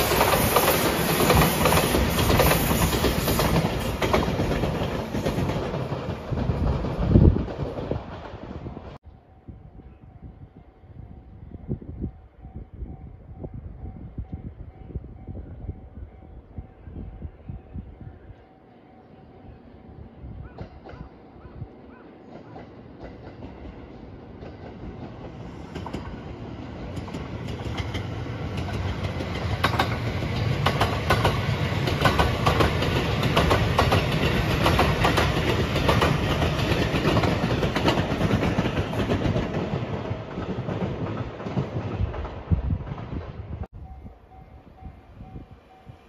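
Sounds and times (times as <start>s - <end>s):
electric train passing: 0.0s - 46.0s
wheels clacking over rail joints: 22.2s - 43.1s.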